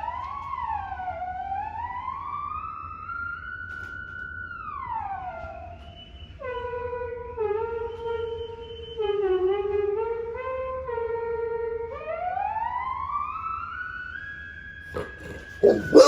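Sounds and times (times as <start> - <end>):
dog howling: 15.0 - 16.0.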